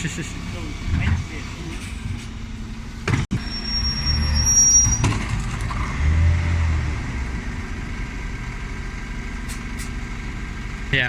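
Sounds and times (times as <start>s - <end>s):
lorry engine rumbling: 0.0s - 11.0s
thin high squeal: 3.4s - 5.2s.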